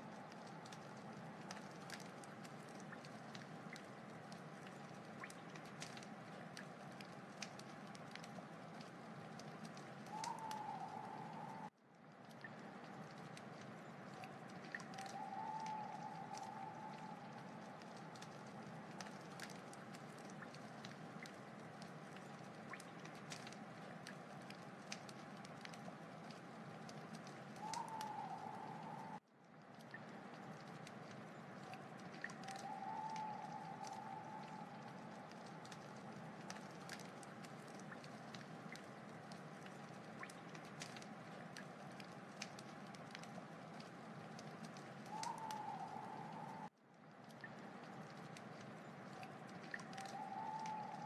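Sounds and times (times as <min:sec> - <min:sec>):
wood fire crackling: 0:00.0 - 0:51.0
thin whistling tone: 0:10.1 - 0:11.7, 0:14.8 - 0:17.8, 0:27.6 - 0:29.2, 0:32.3 - 0:35.3, 0:45.1 - 0:46.7, 0:49.8 - 0:51.0.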